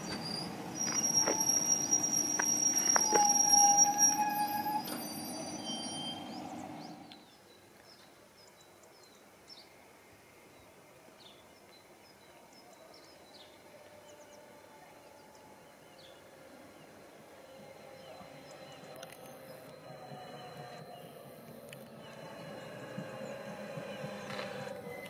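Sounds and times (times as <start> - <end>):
electric railcar squealing tones: 0.0 - 7.2, 13.8 - 25.0
low hum of approaching railcar: 0.0 - 7.5, 12.2 - 25.0.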